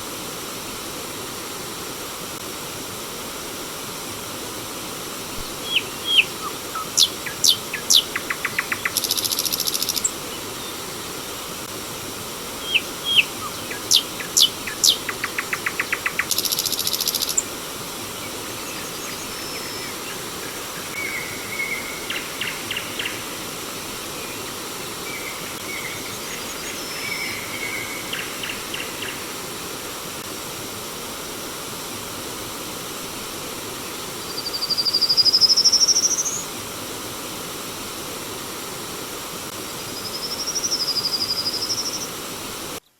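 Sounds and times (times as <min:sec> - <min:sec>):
stream water flowing: 0:00.0 - 0:40.0
songbird singing with trills: 0:05.4 - 0:10.8, 0:12.6 - 0:17.4.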